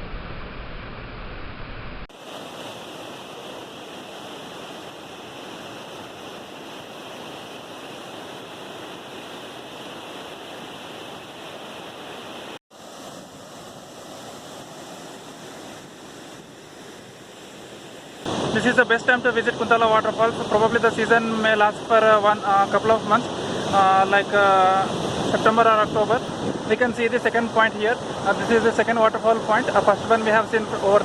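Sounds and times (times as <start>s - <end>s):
waterfall roaring: 17.6s - 31.0s.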